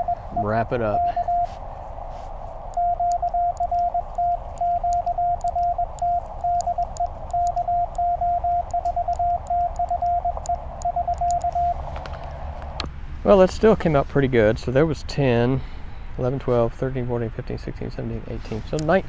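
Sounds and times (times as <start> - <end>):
morse code tone: 0.0 - 12.8
receiver hiss: 0.0 - 19.0
faint clicks: 1.2 - 13.7.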